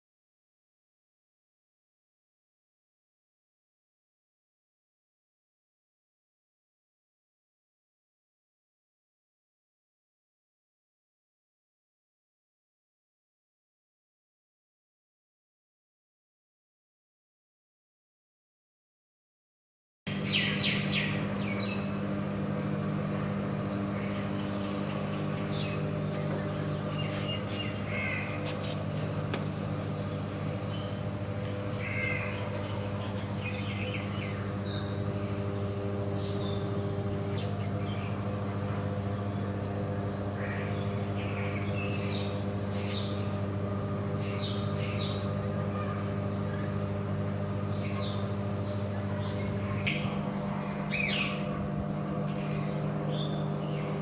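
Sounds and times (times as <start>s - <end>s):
birds calling: 20.1s - 54.0s
low machinery hum: 20.1s - 54.0s.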